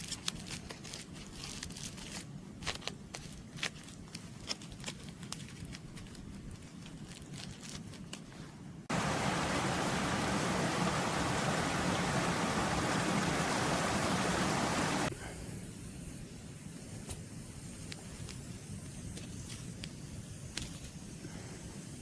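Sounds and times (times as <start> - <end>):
forest background: 8.8 - 22.0
loud steady water hiss: 8.9 - 22.0.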